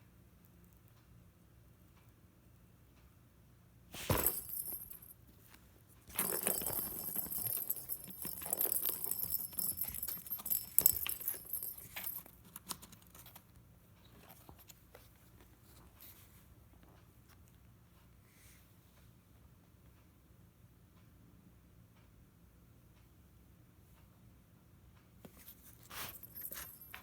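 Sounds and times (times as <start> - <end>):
cat toy jingling and rattling: 4.0 - 5.1, 6.1 - 13.3, 25.8 - 27.0.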